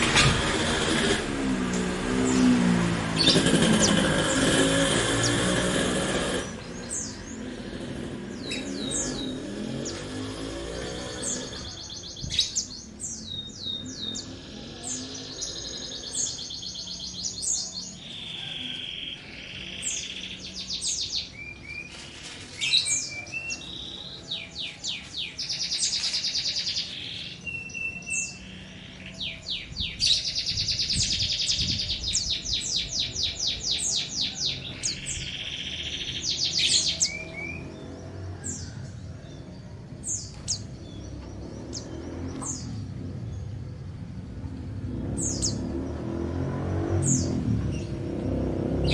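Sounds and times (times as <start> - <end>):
songbird trilling and whistling: 11.1 - 38.8, 45.1 - 45.7.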